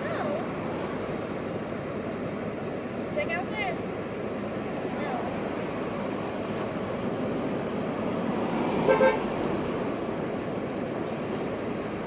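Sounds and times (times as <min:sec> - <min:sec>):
street traffic: 0:00.0 - 0:12.0
car horn toot: 0:08.8 - 0:09.3.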